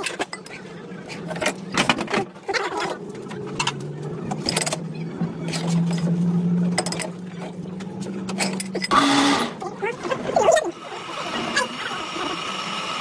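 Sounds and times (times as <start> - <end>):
machine motor humming: 3.0 - 13.0.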